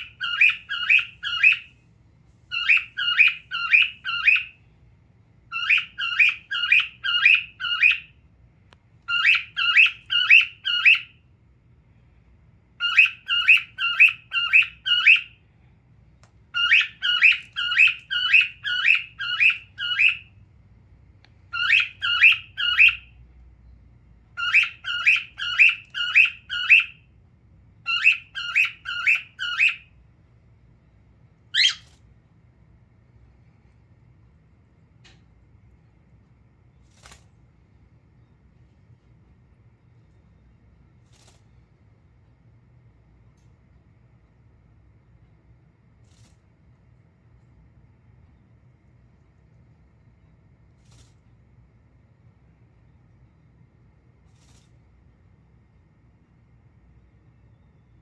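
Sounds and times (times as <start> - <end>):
cockatiel chirping: 0.0 - 1.8, 2.5 - 4.6, 5.5 - 8.2, 9.1 - 11.2, 12.8 - 15.4, 16.5 - 20.4, 21.5 - 23.2, 24.3 - 27.0, 27.8 - 30.0, 31.5 - 32.0.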